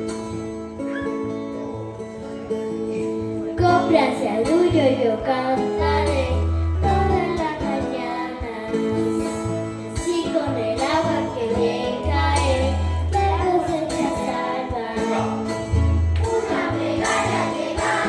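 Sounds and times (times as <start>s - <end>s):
choir singing: 16.2s - 18.0s.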